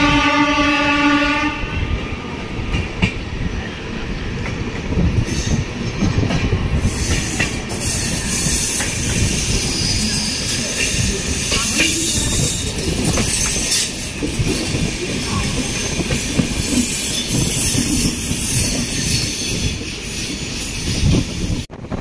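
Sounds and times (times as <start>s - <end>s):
train horn: 0.0s - 1.9s
train rumble: 0.0s - 22.0s
wheel squealing hiss: 6.8s - 12.6s.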